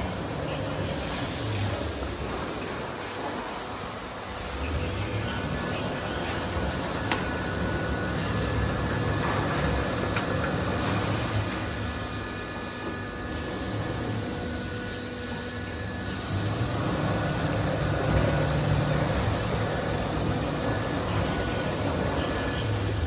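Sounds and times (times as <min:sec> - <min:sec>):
router machine humming: 0:03.4 - 0:23.0.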